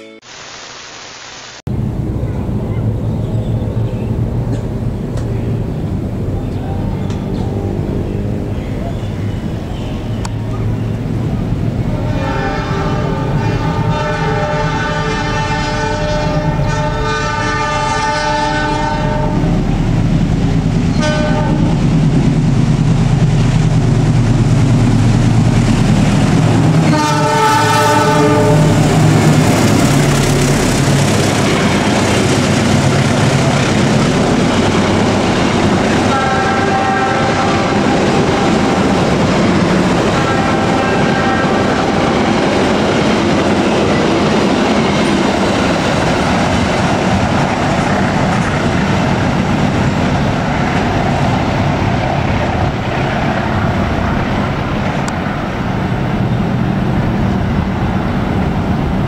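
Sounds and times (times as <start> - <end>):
train horn: 11.8 - 19.7, 20.9 - 21.9, 26.8 - 29.2, 36.0 - 39.0, 40.0 - 42.4
train wheels clattering on rails: 37.3 - 59.0.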